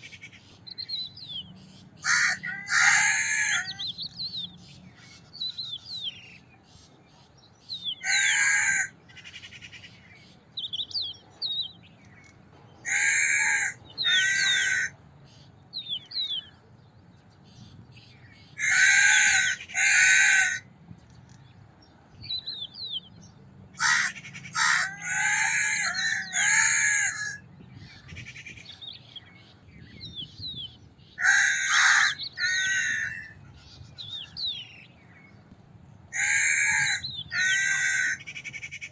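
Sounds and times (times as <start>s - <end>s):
crow cawing: 2.0s - 3.8s, 8.0s - 8.9s, 12.9s - 14.9s, 18.6s - 20.6s, 23.8s - 27.4s, 31.2s - 33.4s, 36.2s - 38.7s.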